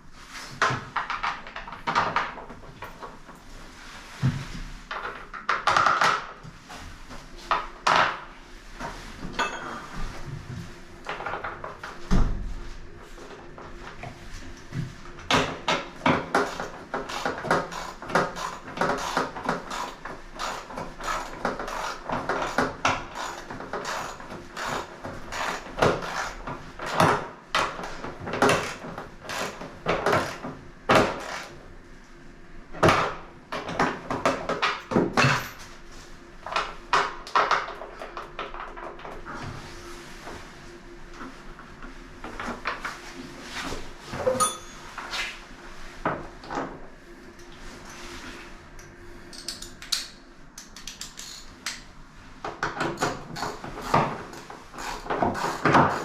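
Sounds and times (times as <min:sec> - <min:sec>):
hand tools knocking and clattering: 0:09.4 - 0:09.8.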